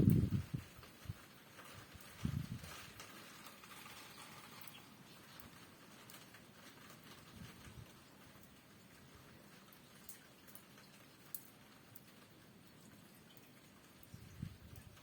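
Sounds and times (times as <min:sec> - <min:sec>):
wind buffeting microphone: 0:00.0 - 0:01.2, 0:01.8 - 0:03.0, 0:14.1 - 0:15.0
light rain pattering: 0:00.0 - 0:15.0.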